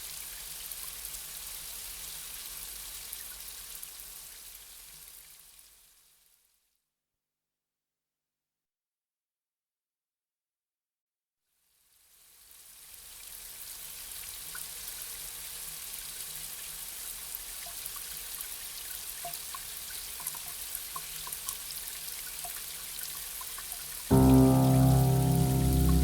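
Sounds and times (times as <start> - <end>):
soft pitched music: 24.1 - 26.0.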